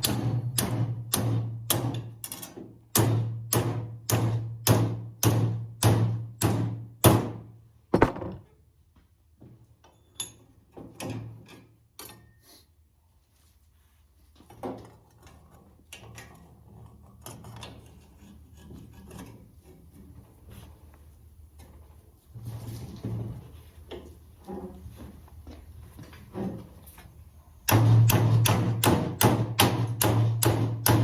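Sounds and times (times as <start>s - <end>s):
soft knocks and clunks: 7.9s - 8.5s.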